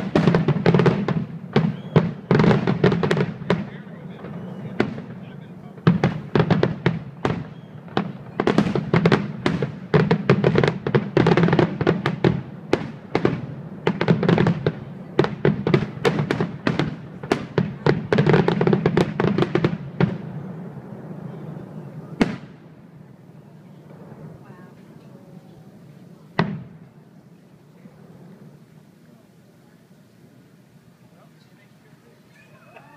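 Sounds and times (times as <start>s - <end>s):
firework crackling: 0.0s - 32.9s.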